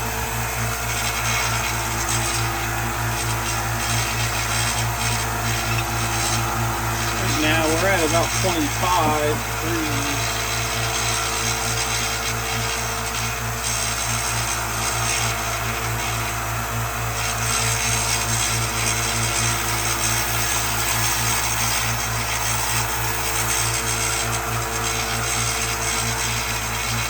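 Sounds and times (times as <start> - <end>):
power sander running: 0.0 - 10.8, 15.3 - 25.0.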